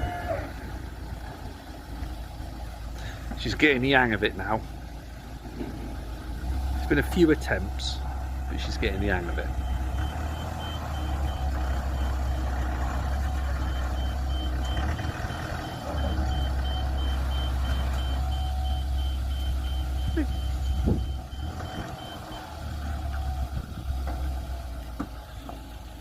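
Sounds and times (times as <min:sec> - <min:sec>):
reversing alarm beeping: 0:09.0 - 0:23.5.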